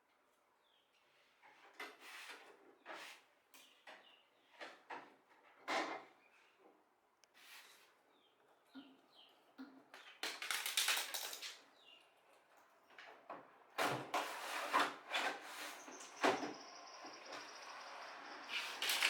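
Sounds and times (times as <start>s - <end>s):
knocks and clatters of parts: 9.6s - 11.7s, 18.6s - 19.0s
parts scraping: 18.4s - 19.0s.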